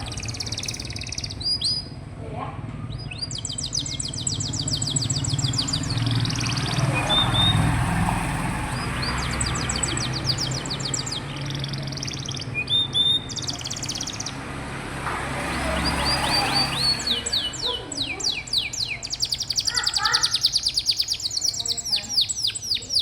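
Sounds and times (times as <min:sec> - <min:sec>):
canary singing trills: 0:00.0 - 0:14.6, 0:15.3 - 0:23.0.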